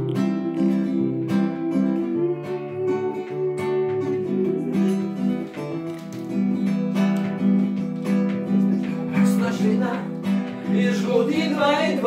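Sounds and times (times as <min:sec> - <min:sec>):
person singing: 0:00.0 - 0:05.9, 0:08.7 - 0:12.0
acoustic guitar strumming: 0:00.0 - 0:12.0.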